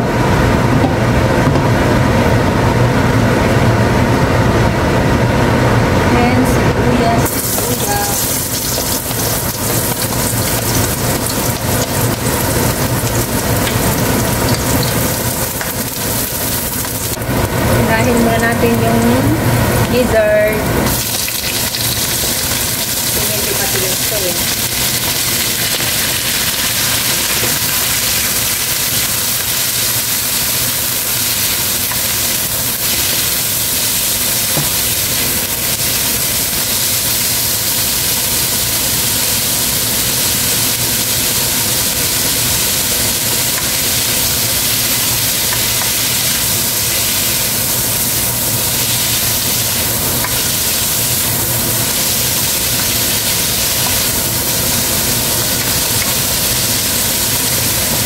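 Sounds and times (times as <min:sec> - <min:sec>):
gizzards sizzling in hot oil: 0:07.2 - 0:58.0
spatula stirring in wok: 0:24.6 - 0:58.0.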